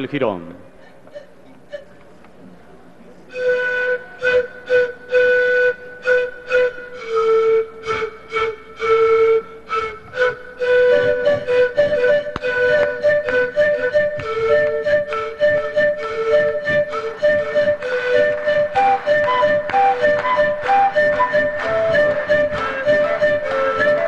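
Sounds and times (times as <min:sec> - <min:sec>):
flute melody: 0:00.8 - 0:02.1, 0:03.3 - 0:24.0.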